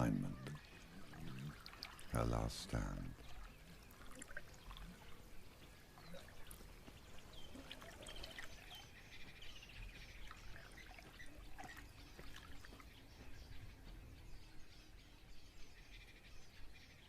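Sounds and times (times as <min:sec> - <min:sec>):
water trickling: 0:00.0 - 0:13.3
bird trill: 0:00.0 - 0:17.0
birds chirping: 0:00.0 - 0:17.0.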